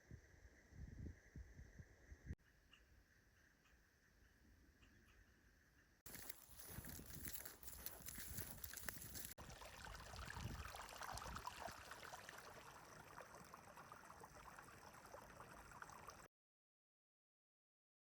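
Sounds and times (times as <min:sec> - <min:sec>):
small stream trickling: 0:06.1 - 0:16.3.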